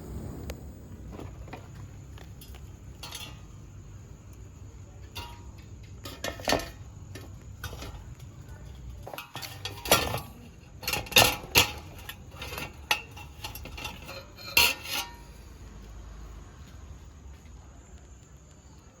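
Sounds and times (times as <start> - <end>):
dishes and utensils clattering: 2.3 - 3.8, 5.0 - 15.4.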